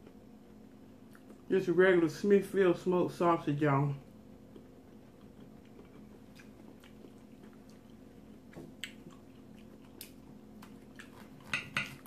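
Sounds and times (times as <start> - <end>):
chewing with wet mouth sounds: 0.0 - 1.5, 4.0 - 12.0
steady low hum: 0.0 - 12.0.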